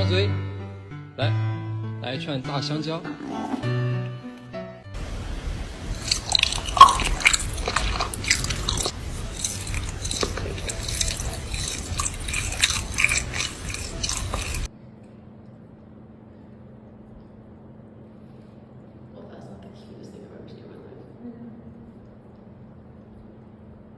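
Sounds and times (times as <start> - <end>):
animal chewing bananas: 5.0 - 14.7
faint steady hum: 5.0 - 23.9.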